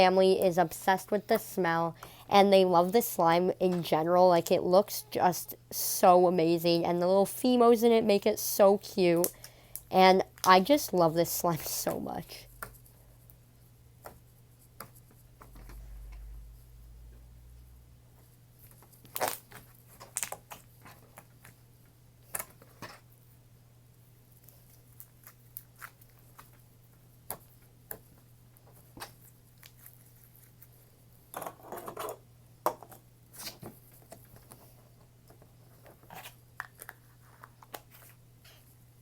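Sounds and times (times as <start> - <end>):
faint steady hum: 0.0 - 39.0
crackling slime: 18.7 - 21.5.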